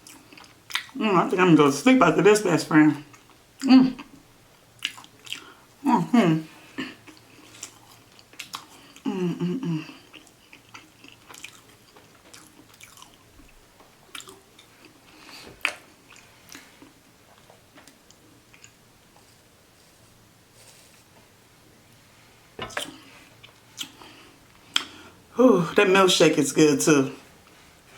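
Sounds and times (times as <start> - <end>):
soft crunches of chewing: 0.0 - 1.0, 3.1 - 4.2, 4.8 - 5.7, 6.7 - 9.1, 9.7 - 21.2, 22.6 - 25.2
person humming: 9.1 - 10.0.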